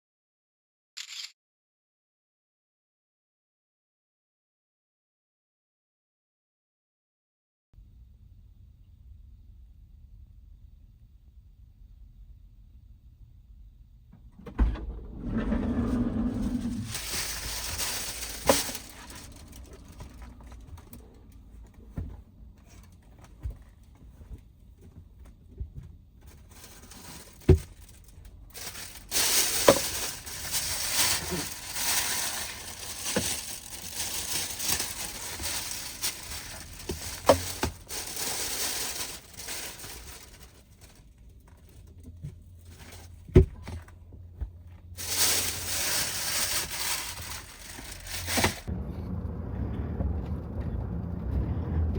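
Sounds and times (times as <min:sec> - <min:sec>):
crinkling and rustling: 0:14.8 - 0:48.7.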